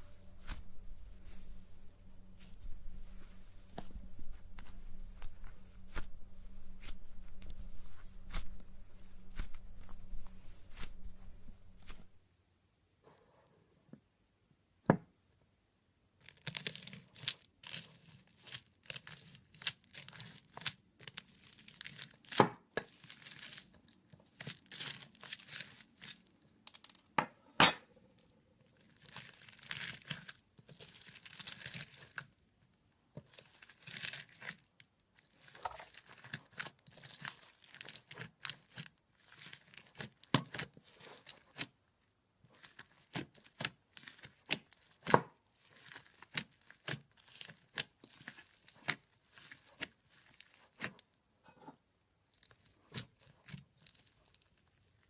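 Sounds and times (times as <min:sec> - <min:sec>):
slime crackling and popping: 0:16.2 - 0:27.0, 0:28.7 - 0:32.4, 0:33.2 - 0:41.8, 0:42.5 - 0:51.1, 0:52.3 - 0:55.0.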